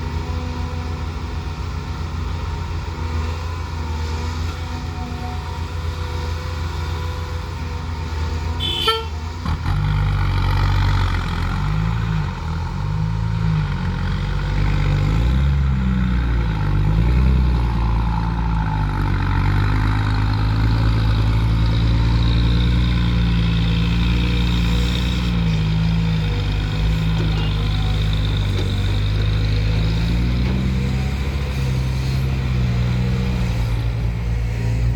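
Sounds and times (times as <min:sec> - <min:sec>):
excavator diesel engine working: 0:00.0 - 0:34.9
horn-like toot: 0:08.6 - 0:09.2.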